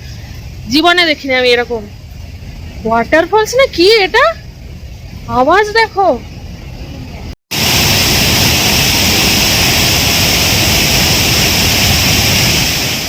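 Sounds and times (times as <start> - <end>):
waterfall roaring: 7.5 - 13.0.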